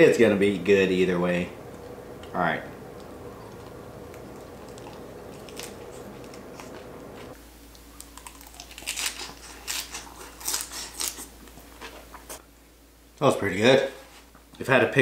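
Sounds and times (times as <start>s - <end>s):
person chewing crunchy food: 2.9s - 12.4s.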